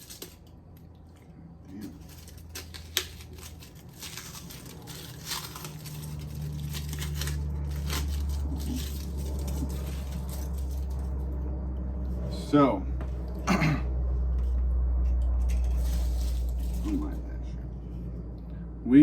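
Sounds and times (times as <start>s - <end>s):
wrapping crinkling and tearing: 0.0s - 0.6s, 1.7s - 11.4s, 15.4s - 17.2s
low steady hum: 0.0s - 19.0s.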